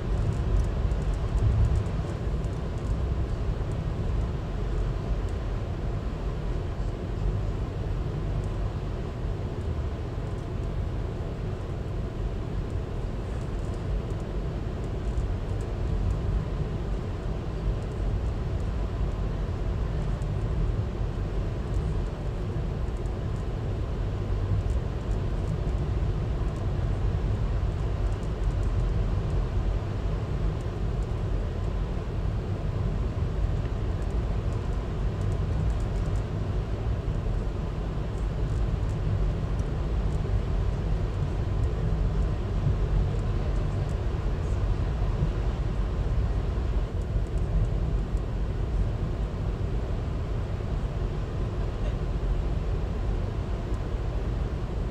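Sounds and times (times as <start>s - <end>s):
faint light ticks: 27.7s - 29.4s, 33.5s - 36.2s.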